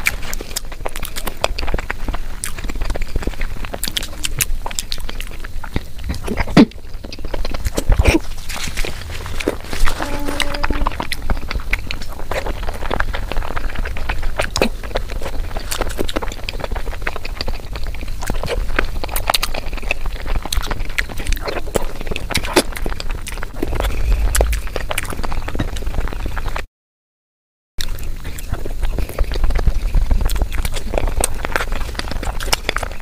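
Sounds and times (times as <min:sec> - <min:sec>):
mouth clicks and smacks: 0:00.0 - 0:26.6
wet sticky chewing: 0:00.0 - 0:26.6, 0:27.8 - 0:33.0
low rumble: 0:08.8 - 0:11.8, 0:23.4 - 0:26.4.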